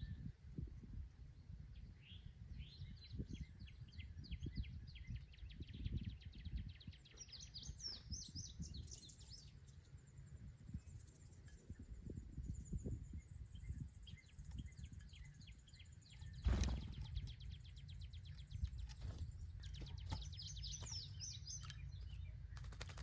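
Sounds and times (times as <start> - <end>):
songbird trilling: 6.4 - 22.9.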